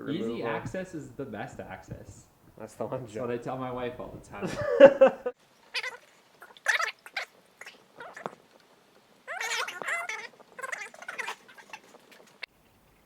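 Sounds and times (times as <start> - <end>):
men laughing: 4.4 - 5.4.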